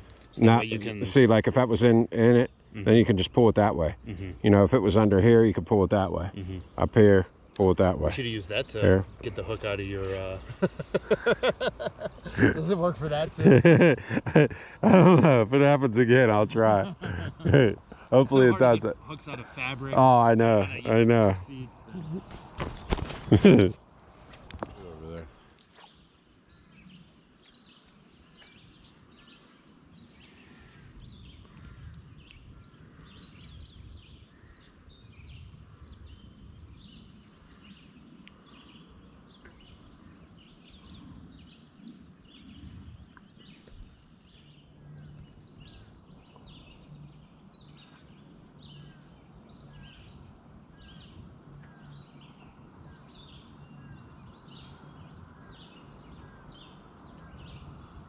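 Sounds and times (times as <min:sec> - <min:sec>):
low steady background rumble: 0:00.0 - 0:22.6
songbirds chirping and singing: 0:00.0 - 0:58.0.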